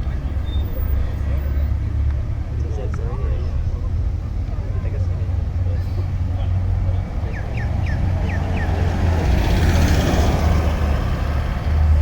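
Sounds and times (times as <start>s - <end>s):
car engine rumbling: 0.0s - 12.0s
vehicle passing by: 5.2s - 12.0s.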